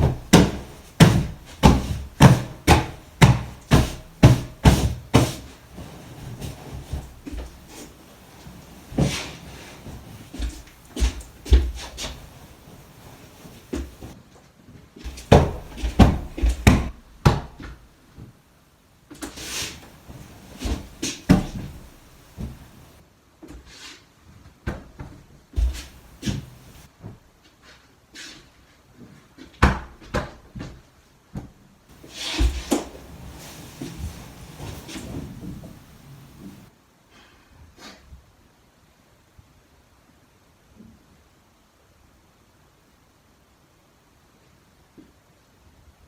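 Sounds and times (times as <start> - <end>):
household knocks and thumps: 0.0 - 14.2, 15.1 - 17.8, 19.2 - 23.0, 25.6 - 26.9, 31.9 - 36.7
short rustle: 0.0 - 14.2, 19.2 - 23.0, 25.6 - 26.9, 31.9 - 36.7.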